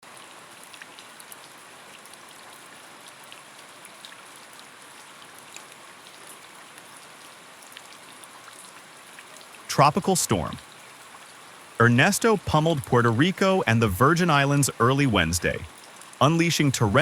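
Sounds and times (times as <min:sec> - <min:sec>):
steady rain falling: 0:00.0 - 0:17.0
raindrop hits: 0:11.8 - 0:17.0.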